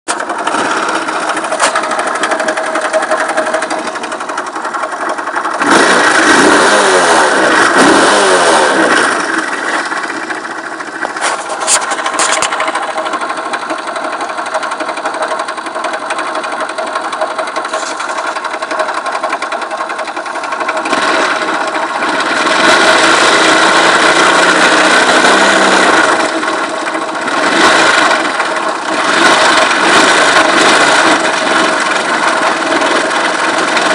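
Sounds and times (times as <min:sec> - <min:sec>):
scooter engine revving: 0:00.1 - 0:33.9.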